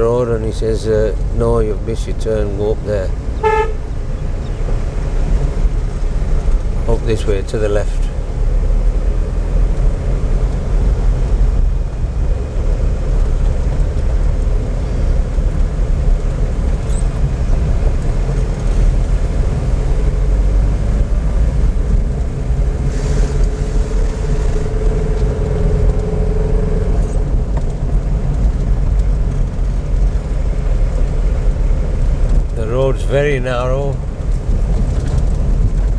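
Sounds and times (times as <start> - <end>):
car engine and road rumble: 0.0 - 35.9.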